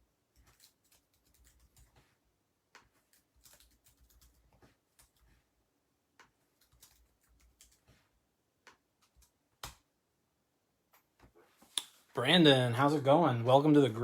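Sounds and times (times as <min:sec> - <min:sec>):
keyboard typing: 0:00.3 - 0:02.2, 0:02.8 - 0:05.4, 0:06.2 - 0:08.1, 0:08.7 - 0:09.9.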